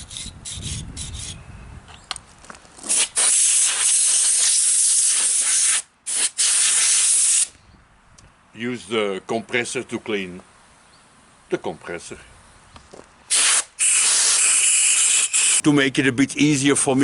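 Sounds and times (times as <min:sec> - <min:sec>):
compressed air blow gun hissing: 0:02.9 - 0:07.6, 0:13.3 - 0:15.6.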